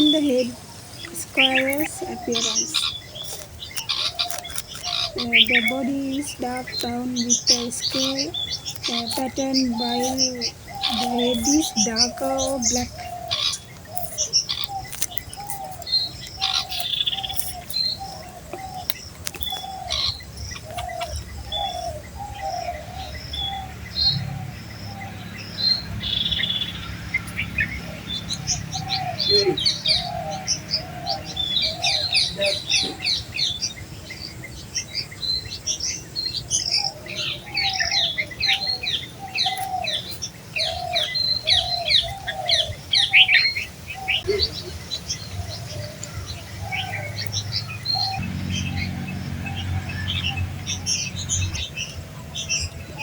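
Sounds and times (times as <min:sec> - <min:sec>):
birds chirping high notes: 0:00.0 - 0:33.7, 0:36.8 - 0:53.0
lower repeated bird calls: 0:00.0 - 0:53.0.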